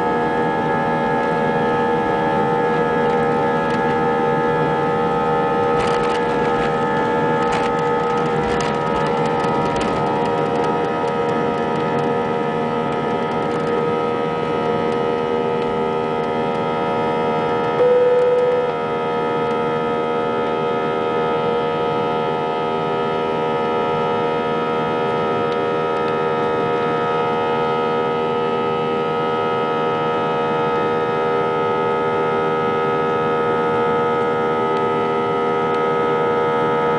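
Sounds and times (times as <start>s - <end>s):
jet engines droning in cabin: 0.0s - 36.9s
brief loud tone: 17.8s - 19.0s.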